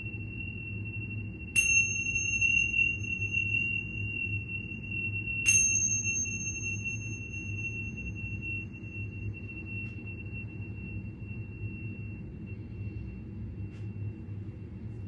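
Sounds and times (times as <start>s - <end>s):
high-pitched ringing tone: 0.0s - 15.0s
bright metallic ping: 1.6s - 11.8s.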